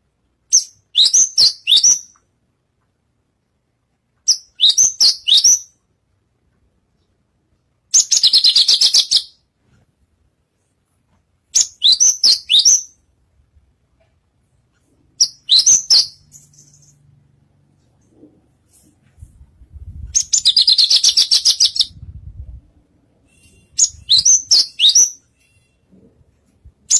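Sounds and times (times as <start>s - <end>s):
lark singing high chirps: 0.5s - 2.2s, 4.3s - 5.8s, 11.6s - 13.0s, 15.2s - 17.0s, 20.2s - 22.0s, 23.3s - 25.3s.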